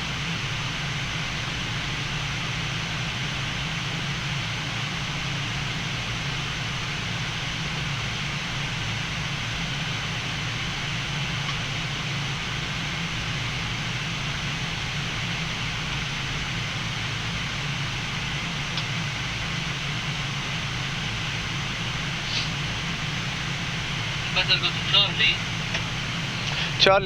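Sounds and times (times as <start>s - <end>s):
low hum: 0.0s - 27.0s
rush of air: 22.1s - 22.9s.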